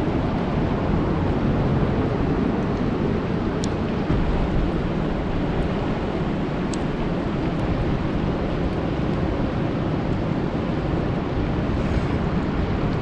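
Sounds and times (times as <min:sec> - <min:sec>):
rain falling on a lake: 0:00.1 - 0:11.6
sharp raindrop ticks: 0:03.6 - 0:09.3.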